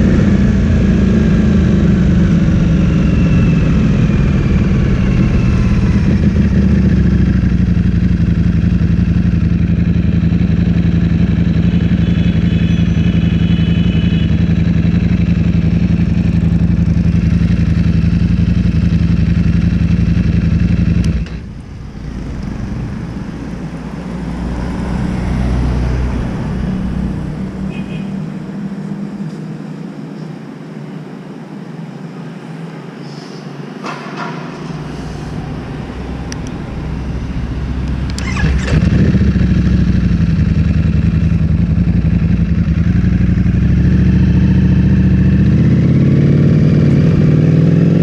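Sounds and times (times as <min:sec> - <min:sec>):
low rumble: 0:00.0 - 0:11.7, 0:14.0 - 0:29.4, 0:34.2 - 0:45.9
motorcycle engine: 0:00.0 - 0:29.8, 0:33.8 - 0:48.0.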